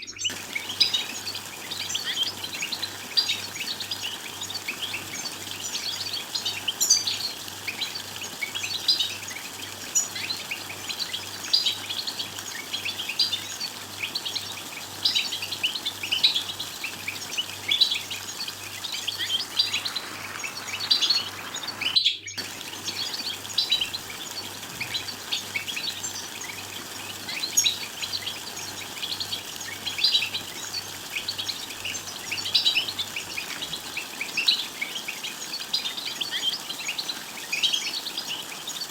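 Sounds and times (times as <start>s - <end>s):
goldfinches twittering: 0.0s - 38.9s.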